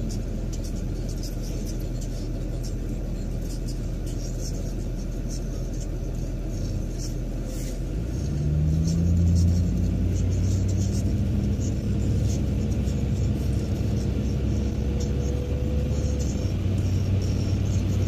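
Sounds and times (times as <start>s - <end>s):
road noise inside car: 0.0s - 18.0s
car engine accelerating: 5.9s - 18.0s.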